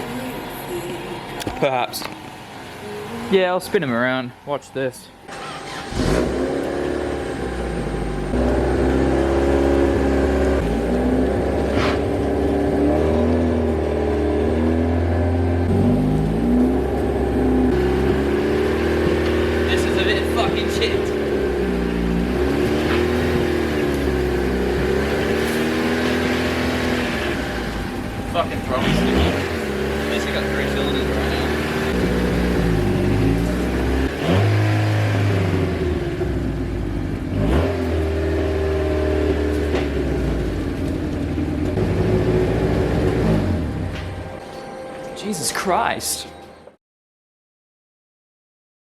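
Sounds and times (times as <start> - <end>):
car engine revving roughly: 5.3 - 40.9, 41.6 - 43.9.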